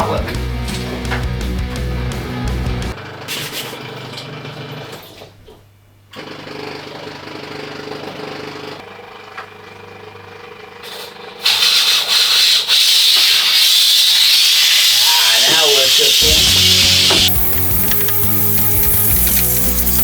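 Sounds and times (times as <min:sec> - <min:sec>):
steam jet hissing: 0:11.4 - 0:20.0.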